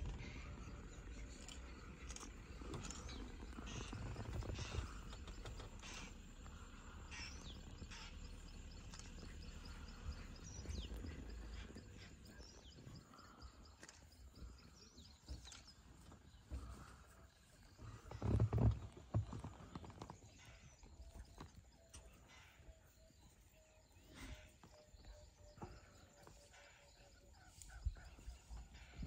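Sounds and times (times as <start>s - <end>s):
low steady rumble: 0.0s - 18.2s.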